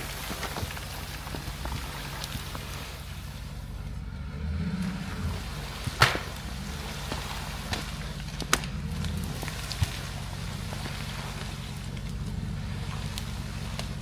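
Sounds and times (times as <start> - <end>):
vehicle engine idling: 0.0 - 14.0
sharp knocks: 6.0 - 6.4.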